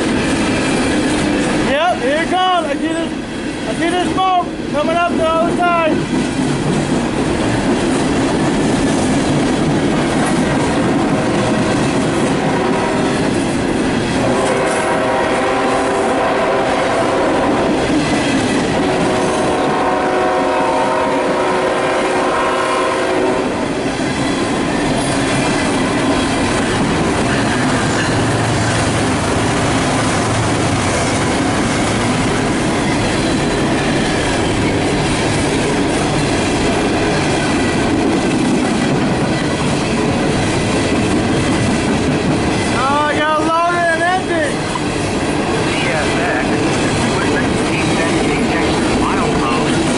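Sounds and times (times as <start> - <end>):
freight train wheels clacking: 0.0 - 49.9
locomotive horn: 12.3 - 13.2, 14.2 - 17.8, 18.8 - 23.6.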